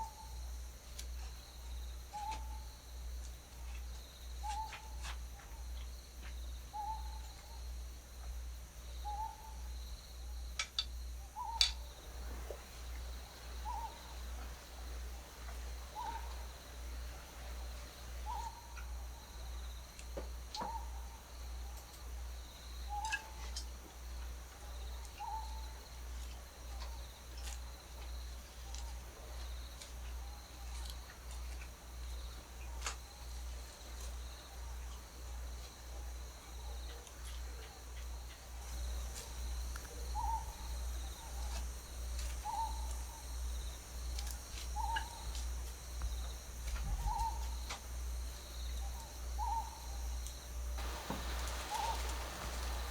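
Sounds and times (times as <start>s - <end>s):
owl hooting: 11.4s - 17.3s, 18.1s - 19.0s, 25.2s - 25.7s, 40.2s - 40.6s, 42.4s - 42.9s, 44.8s - 45.2s, 47.0s - 47.6s, 49.4s - 49.8s, 50.8s - 52.9s.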